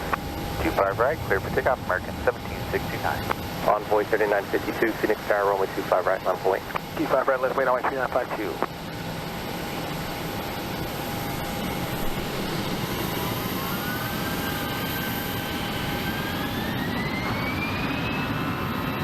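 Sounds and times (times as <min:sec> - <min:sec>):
jet engines spooling up: 0:00.0 - 0:08.6.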